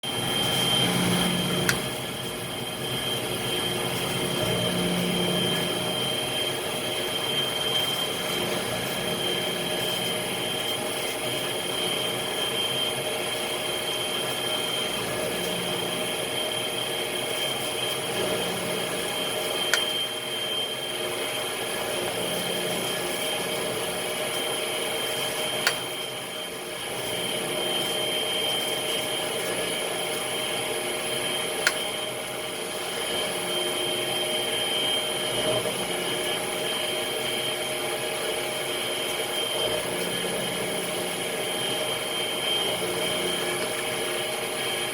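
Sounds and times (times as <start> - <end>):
sharp clicks: 25.6 - 25.9.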